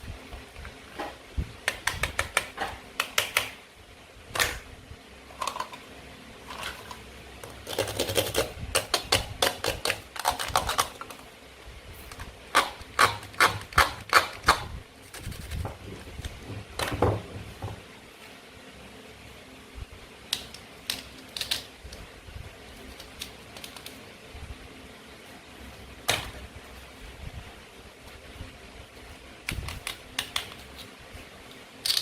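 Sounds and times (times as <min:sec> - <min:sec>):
toy pieces clicking and tapping: 0:20.4 - 0:21.7.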